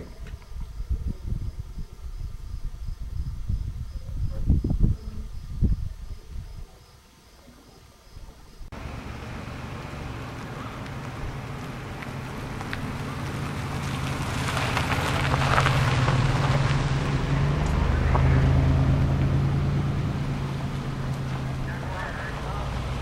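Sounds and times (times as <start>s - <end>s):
tyre noise: 8.3s - 23.0s
car engine running: 8.7s - 23.0s.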